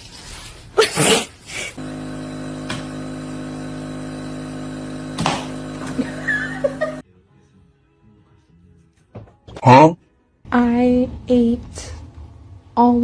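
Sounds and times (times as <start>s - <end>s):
steady mechanical hum: 1.7s - 7.0s
short noisy bursts: 1.8s - 7.0s.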